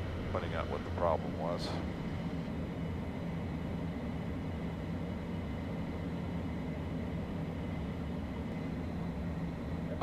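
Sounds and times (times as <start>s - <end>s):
jet engine and airflow rumble: 0.0s - 10.0s.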